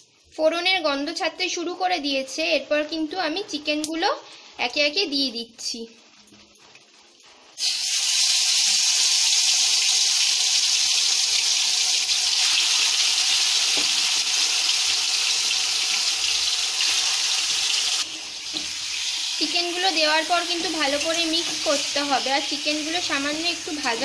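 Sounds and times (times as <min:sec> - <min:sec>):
chicken sizzling in hot oil: 0:07.0 - 0:24.0.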